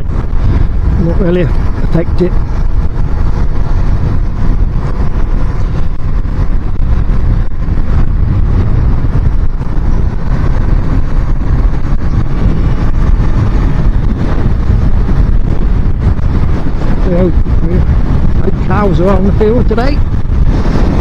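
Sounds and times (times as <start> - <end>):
motorcycle engine cruising: 0.0 - 21.0
wind buffeting on microphone: 0.0 - 21.0.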